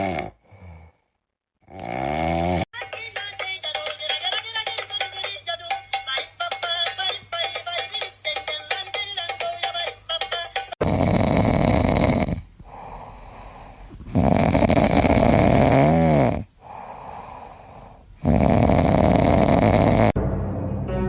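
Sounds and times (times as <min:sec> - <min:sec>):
animal snoring loudly: 0:00.0 - 0:01.0, 0:01.6 - 0:02.7, 0:10.8 - 0:13.0, 0:14.0 - 0:16.9, 0:18.2 - 0:20.2.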